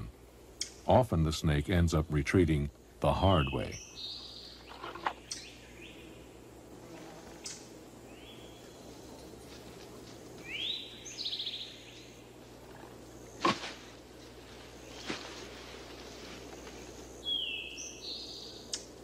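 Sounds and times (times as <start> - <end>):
steady outdoor hum: 0.0 - 19.0
birds calling: 1.5 - 6.6, 10.2 - 19.0.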